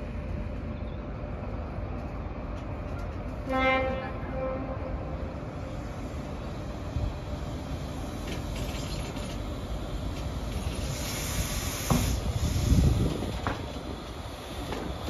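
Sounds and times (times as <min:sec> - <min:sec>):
wheel on rail rumble: 0:00.0 - 0:15.0
rushing wind: 0:09.4 - 0:15.0.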